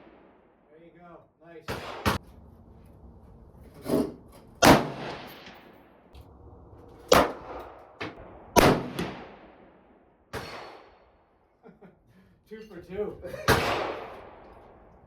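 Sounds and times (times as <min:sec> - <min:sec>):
gunshots with echo: 0:01.7 - 0:02.2, 0:04.6 - 0:05.8, 0:07.1 - 0:11.0, 0:13.4 - 0:14.9.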